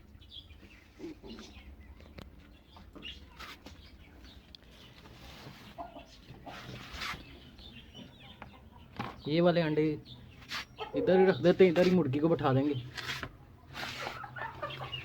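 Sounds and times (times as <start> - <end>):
hen clucking: 5.5 - 12.3, 13.7 - 15.0.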